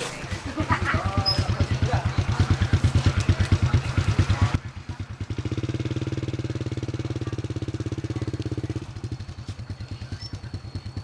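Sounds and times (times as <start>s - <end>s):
small motorbike engine running: 0.4s - 11.0s.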